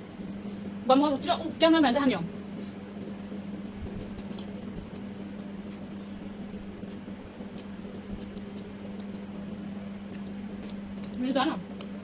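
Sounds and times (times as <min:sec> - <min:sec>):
steady low hum: 0:00.0 - 0:12.0
chewing mouths smacking: 0:06.8 - 0:12.0.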